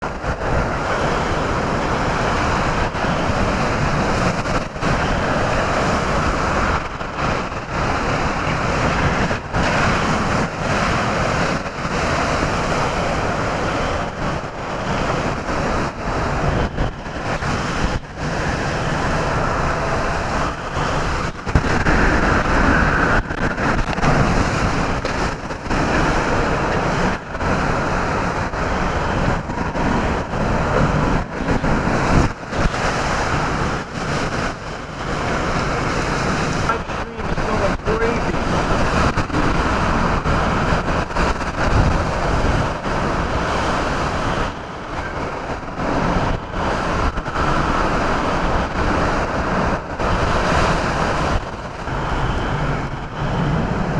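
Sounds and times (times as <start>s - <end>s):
strong wind buffeting microphone: 0.0s - 53.9s.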